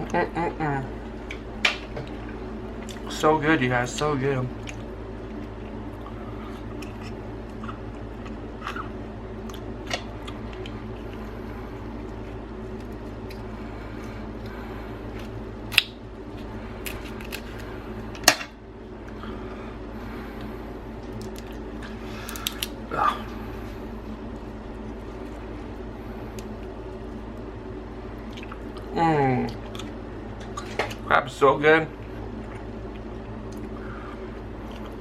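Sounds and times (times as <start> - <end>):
steady low hum: 0.0 - 35.0
crab shells cracking: 15.3 - 16.0, 16.8 - 18.5, 21.1 - 22.8.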